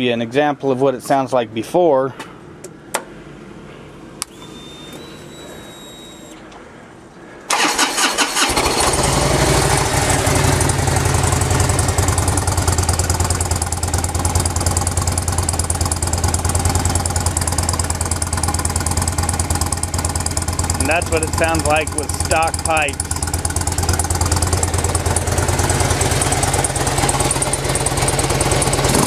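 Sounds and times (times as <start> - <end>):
faint high whine: 4.2 - 7.2
motorcycle engine starting and idling: 7.5 - 29.0.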